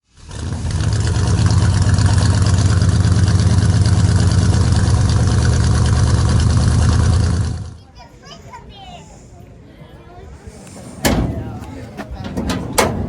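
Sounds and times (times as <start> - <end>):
truck engine idling: 0.3 - 7.7, 10.4 - 13.0.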